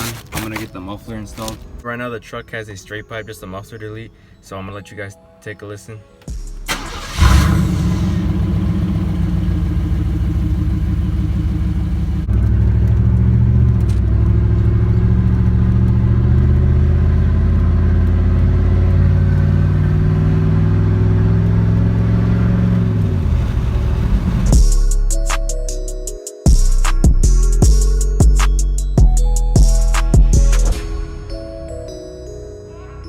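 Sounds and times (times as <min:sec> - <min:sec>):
truck engine idling: 0:06.7 - 0:24.6.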